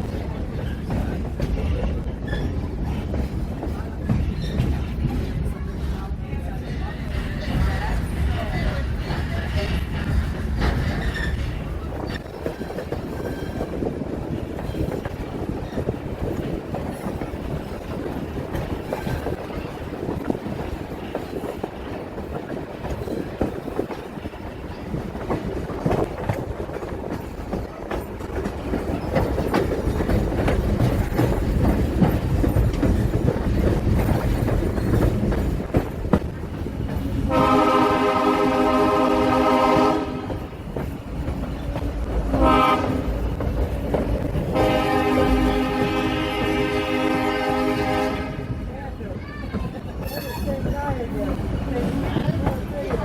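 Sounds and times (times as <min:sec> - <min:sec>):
train rumble and wheel clatter: 0:00.0 - 0:53.0
locomotive air horn: 0:37.3 - 0:40.3, 0:42.4 - 0:43.1, 0:44.5 - 0:48.6.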